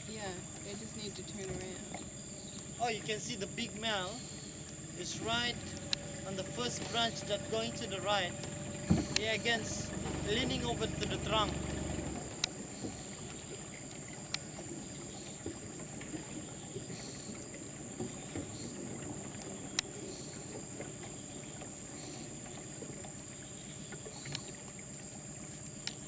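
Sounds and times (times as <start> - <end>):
low background rumble: 0.0 - 13.9
insects droning: 0.0 - 26.0.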